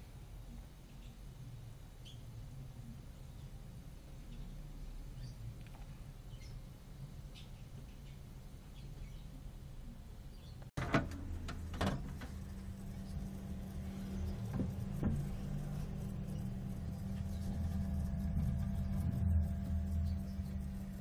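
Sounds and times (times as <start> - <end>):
electric motor humming: 11.0 - 21.0
sharp knocks and taps: 14.4 - 15.6.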